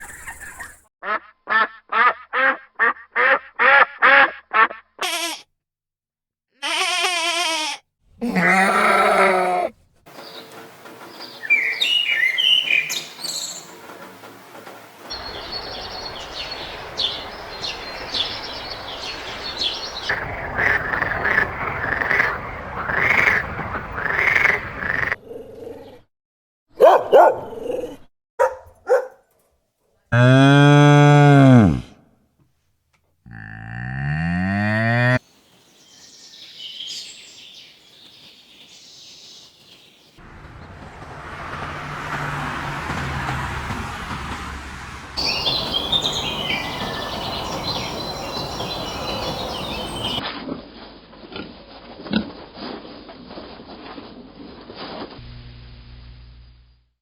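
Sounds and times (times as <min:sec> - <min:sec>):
bird chirping: 0:00.0 - 0:00.8, 0:10.2 - 0:13.8, 0:15.1 - 0:20.8, 0:45.2 - 0:50.2
farm animal calls: 0:06.6 - 0:09.7.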